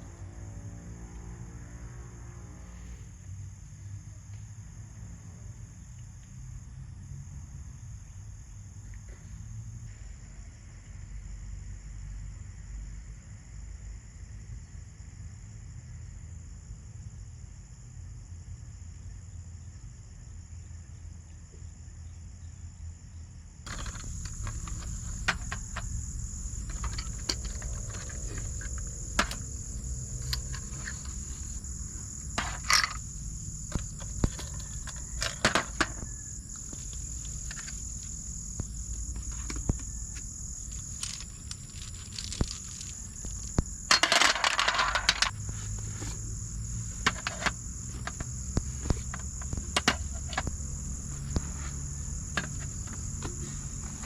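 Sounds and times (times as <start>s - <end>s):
crickets and insects chirring: 0.0s - 54.0s
light clinks and knocks: 23.7s - 31.6s
rustle: 33.7s - 54.0s.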